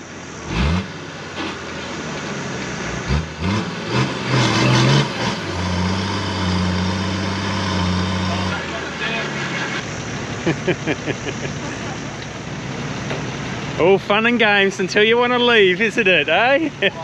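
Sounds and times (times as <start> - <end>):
engine revving: 0.0 - 13.4.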